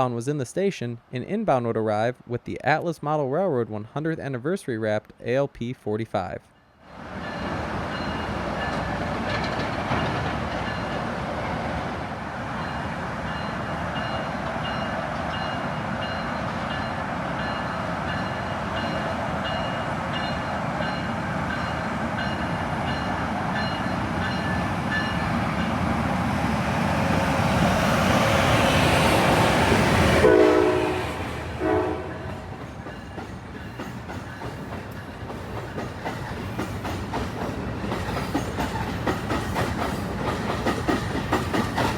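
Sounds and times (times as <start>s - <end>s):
electric trains rumbling: 6.8s - 41.9s
train horn blasts: 30.2s - 32.4s.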